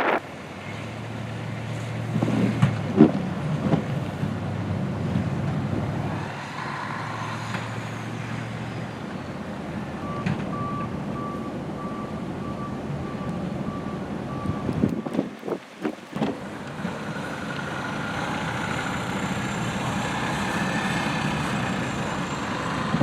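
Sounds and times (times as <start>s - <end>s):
wind noise: 0.0s - 0.4s, 2.0s - 8.4s, 14.2s - 17.2s, 18.0s - 23.0s
reversing alarm beeping: 10.0s - 15.2s
vehicle engine running: 16.3s - 23.0s.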